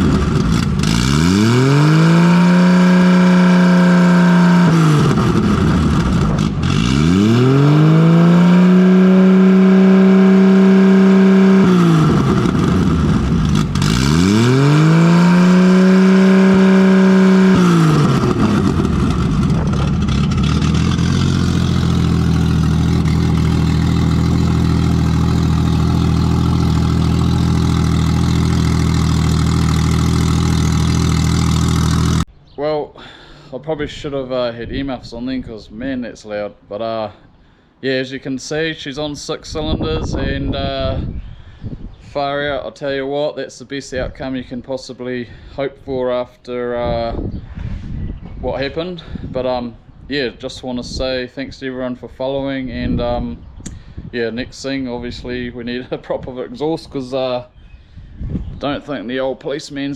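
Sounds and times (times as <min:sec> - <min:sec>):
loud car engine revving and idling: 0:00.0 - 0:32.3.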